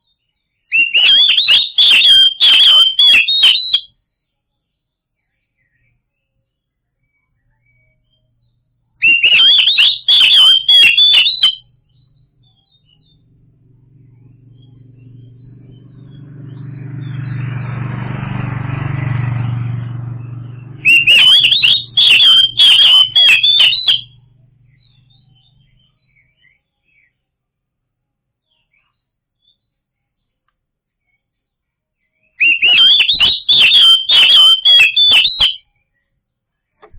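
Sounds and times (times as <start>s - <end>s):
bird singing whistled notes: 0.3s - 4.0s, 7.0s - 27.2s, 32.1s - 35.7s
low rumble: 11.7s - 23.3s, 24.0s - 25.7s.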